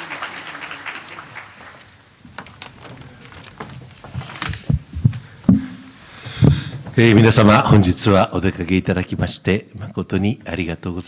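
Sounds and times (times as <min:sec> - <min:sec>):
audience applause: 0:00.0 - 0:02.1
low thumps: 0:03.9 - 0:07.4.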